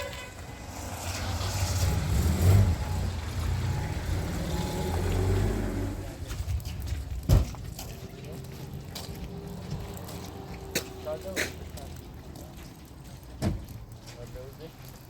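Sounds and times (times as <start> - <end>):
car engine humming: 0.5 - 6.3.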